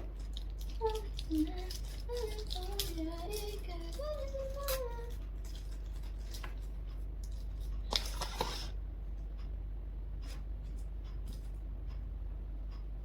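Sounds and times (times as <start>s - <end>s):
packaging crinkling and tearing: 0.0s - 8.7s.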